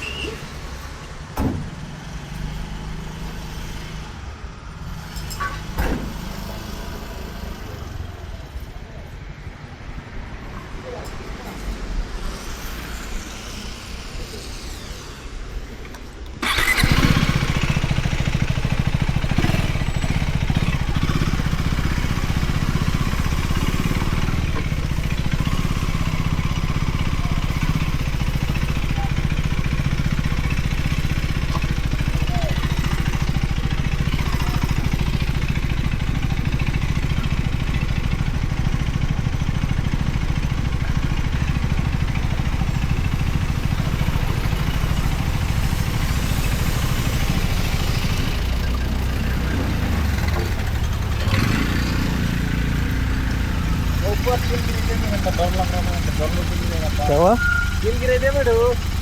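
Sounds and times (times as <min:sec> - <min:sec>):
motorcycle engine droning: 0:16.4 - 0:59.0.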